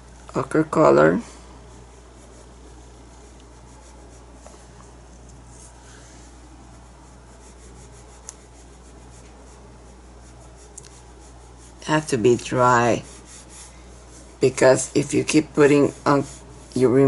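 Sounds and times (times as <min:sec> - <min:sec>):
steady low hum: 0:00.0 - 0:17.0
paintbrush rubbing on surface: 0:00.7 - 0:17.0.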